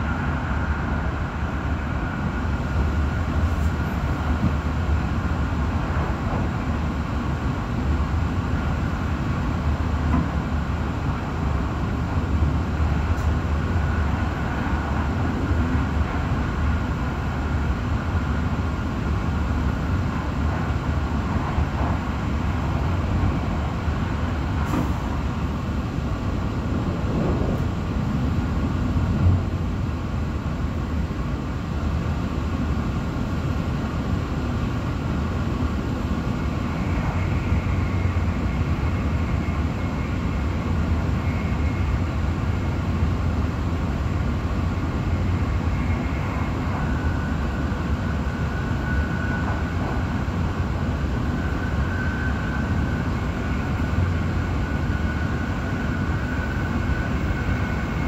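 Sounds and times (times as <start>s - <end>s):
train rumble inside carriage: 0.0s - 58.0s
faint high whine: 35.6s - 58.0s.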